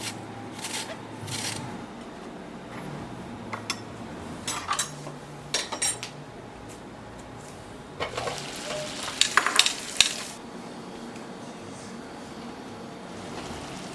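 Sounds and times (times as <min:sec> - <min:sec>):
dishes scraping and clinking: 0:02.7 - 0:06.2, 0:08.0 - 0:10.4.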